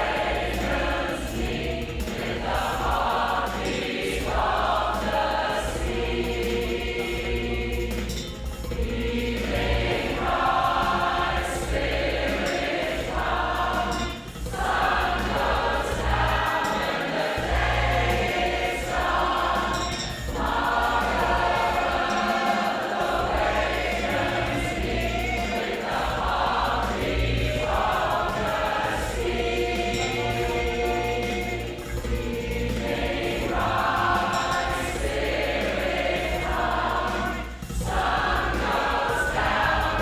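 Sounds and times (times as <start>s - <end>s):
women's choir singing: 0.0s - 40.0s.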